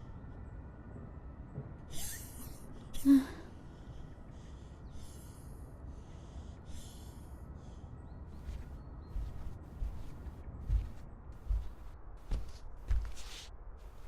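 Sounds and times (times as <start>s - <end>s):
person gasping breaths: 2.8s - 8.0s.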